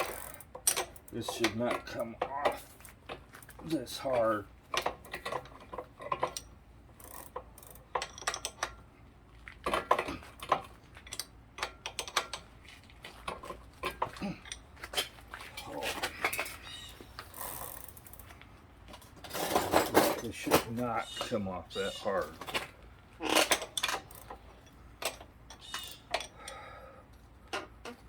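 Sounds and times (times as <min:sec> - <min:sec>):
metal tool clicks and clinks: 0:00.0 - 0:02.7, 0:23.3 - 0:26.6.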